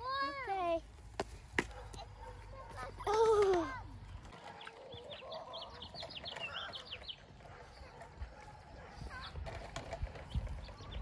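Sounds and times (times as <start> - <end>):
songbird chirping: 2.0 - 9.5.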